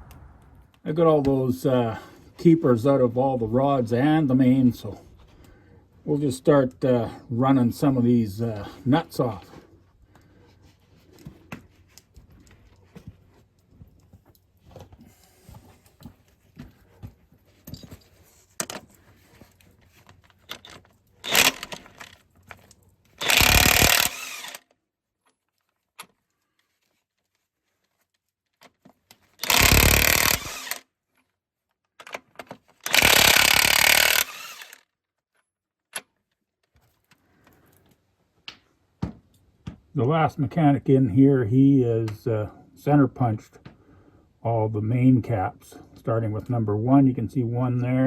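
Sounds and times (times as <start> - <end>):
impact wrench whirring: 21.2 - 22.2, 23.2 - 24.7, 29.4 - 30.8, 32.8 - 34.8.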